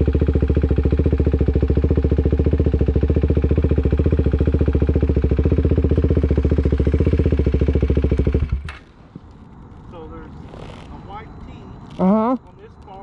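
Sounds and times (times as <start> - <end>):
motorcycle engine idling: 0.0 - 9.3.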